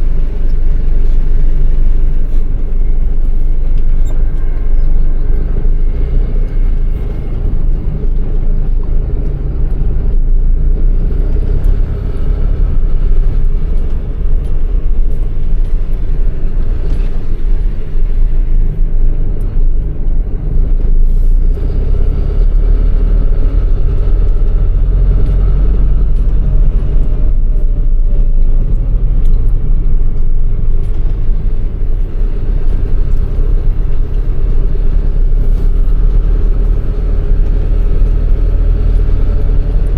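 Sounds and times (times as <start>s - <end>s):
truck diesel engine rumble: 0.0s - 39.9s.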